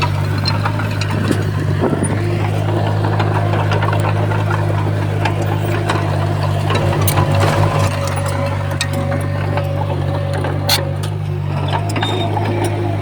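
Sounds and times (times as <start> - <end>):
bulldozer diesel engine running: 0.0 - 13.0
metallic clicks and clanks: 0.0 - 13.0.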